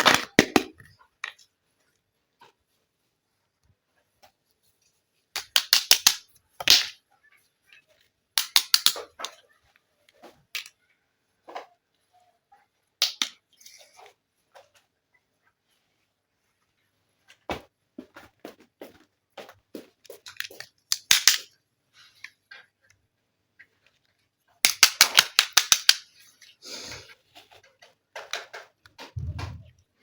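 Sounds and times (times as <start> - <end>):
plastic toy pieces clicking: 5.3 - 7.0, 8.4 - 9.4, 13.0 - 13.4, 20.3 - 21.6, 24.6 - 26.1.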